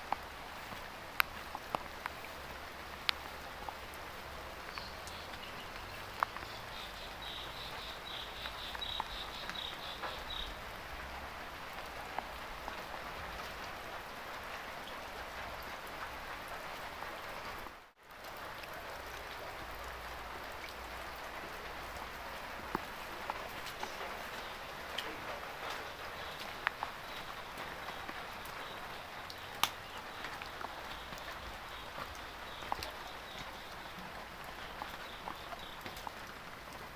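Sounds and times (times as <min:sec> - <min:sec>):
drip ticks: 0:00.0 - 0:04.0, 0:04.6 - 0:10.6, 0:21.8 - 0:36.9
heavy rain: 0:00.0 - 0:36.9.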